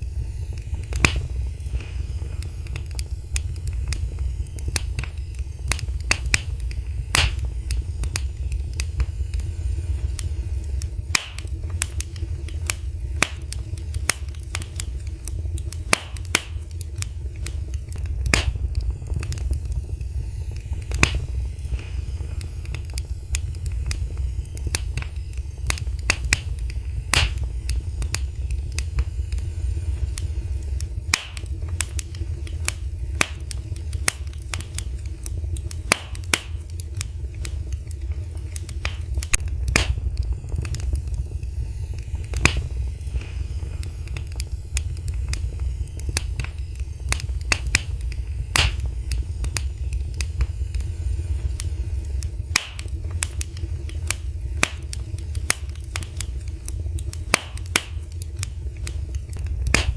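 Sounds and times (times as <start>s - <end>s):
fire crackles and pops: 0.0s - 59.9s
fireplace flames rumbling: 0.0s - 59.9s.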